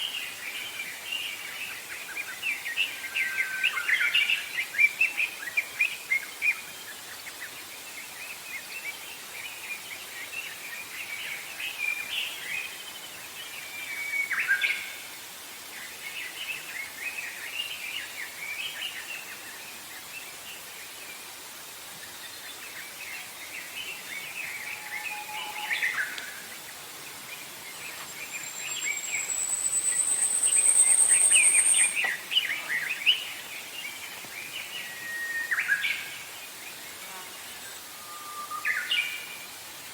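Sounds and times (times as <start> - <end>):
songbirds chirping and trilling: 22.3 - 37.9
high buzzy bird trill: 28.2 - 32.1.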